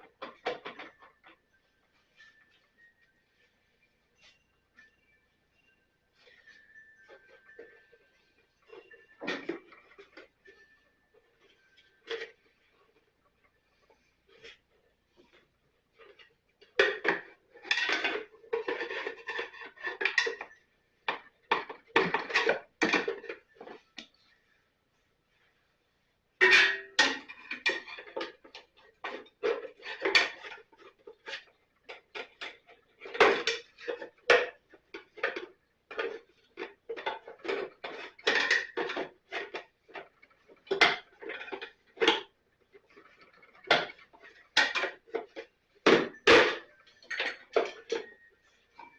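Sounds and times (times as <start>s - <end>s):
metal tools clinking: 42.9s - 48.9s.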